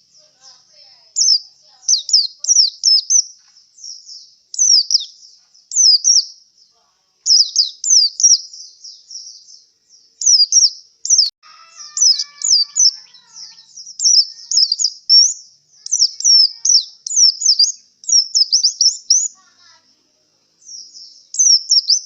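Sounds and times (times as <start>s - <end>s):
white-eye singing: 10.2s - 20.0s.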